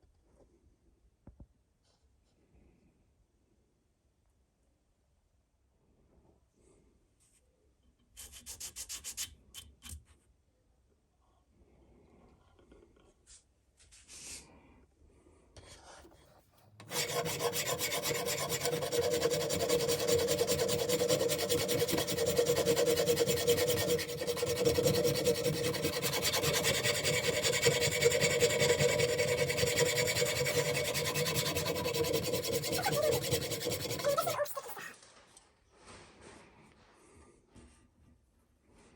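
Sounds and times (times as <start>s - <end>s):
sandpaper scraping on metal: 16.8s - 35.0s.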